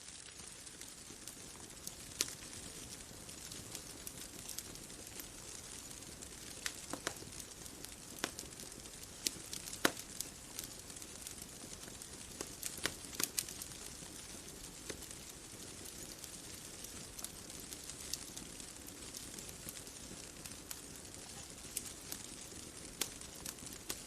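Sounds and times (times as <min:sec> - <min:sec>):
bonfire crackling: 0:00.0 - 0:24.0.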